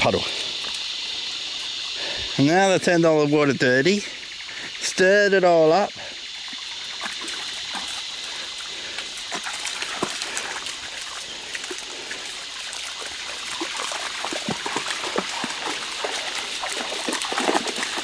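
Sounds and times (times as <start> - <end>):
water trickling: 4.0 - 18.0
dog splashing through water: 6.5 - 18.0.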